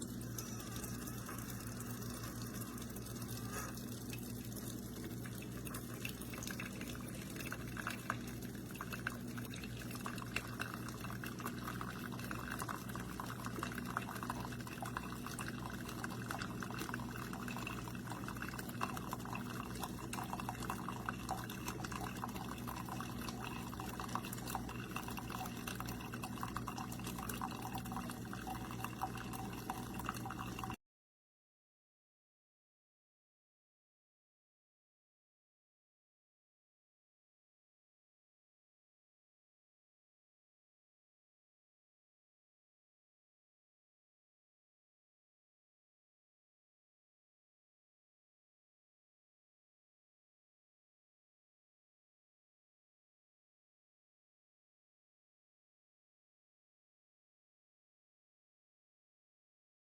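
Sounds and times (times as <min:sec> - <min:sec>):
coffee dripping into a cup: 0:00.0 - 0:30.8
coffee maker humming: 0:00.0 - 0:30.8.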